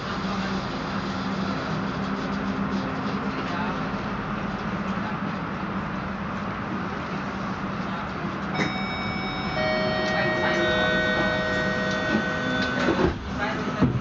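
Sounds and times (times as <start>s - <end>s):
train cabin hum and rumble: 0.0s - 14.0s
high whining tones: 8.6s - 13.1s.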